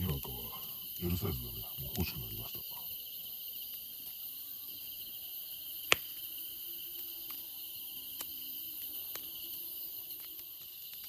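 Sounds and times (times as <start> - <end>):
campfire wood popping: 0.0 - 2.9, 5.7 - 7.4, 8.0 - 11.0
insects chirring: 0.0 - 11.0.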